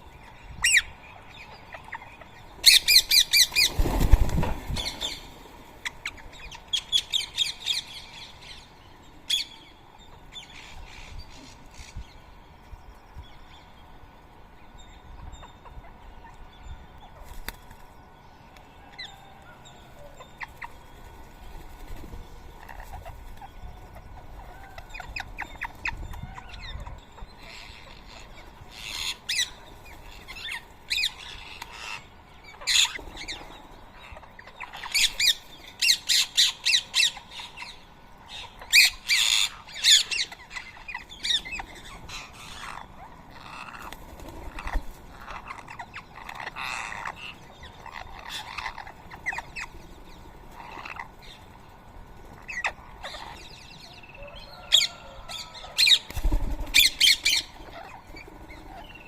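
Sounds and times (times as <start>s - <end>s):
parakeets squawking: 38.4s - 49.7s, 50.5s - 51.4s, 52.4s - 53.6s, 54.2s - 59.0s.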